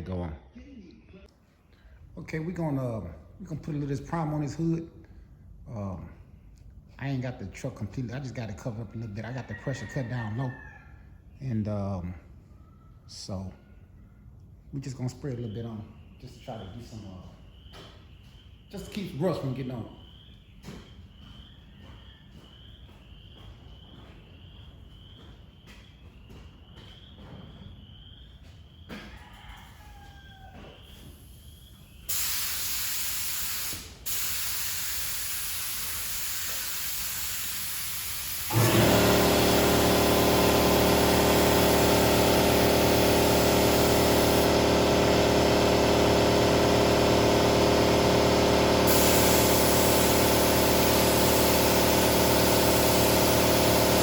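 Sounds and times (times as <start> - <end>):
faint insect chirps: 15.1 - 29.8, 30.8 - 33.4
air compressor humming: 32.1 - 54.0
spray gun hissing: 32.1 - 54.0.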